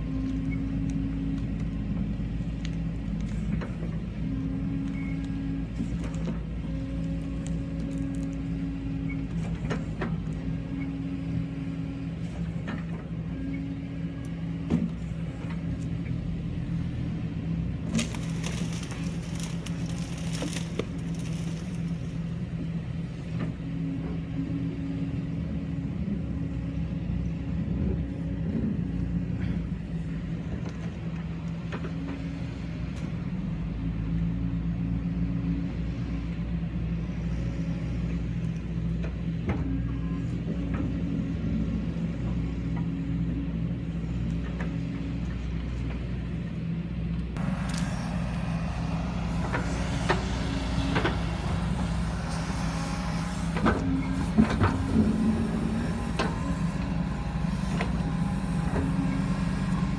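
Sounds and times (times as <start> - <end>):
excavator diesel engine running: 0.0 - 35.8, 44.4 - 59.9
branches snapping: 17.9 - 22.2
wood cracking and splintering: 17.9 - 22.2.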